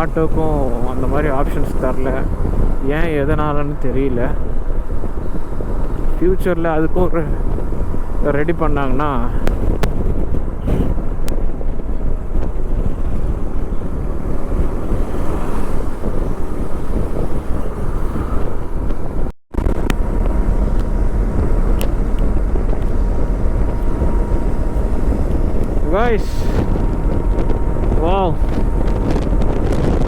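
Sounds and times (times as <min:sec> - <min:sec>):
wind rush on microphone: 0:00.0 - 0:30.0
motorcycle engine running: 0:09.4 - 0:30.0.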